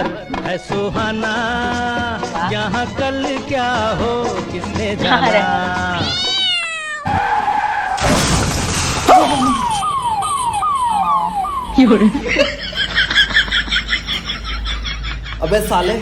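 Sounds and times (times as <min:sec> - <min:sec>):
falling siren-like wail: 0:07.0 - 0:08.2, 0:09.0 - 0:12.7.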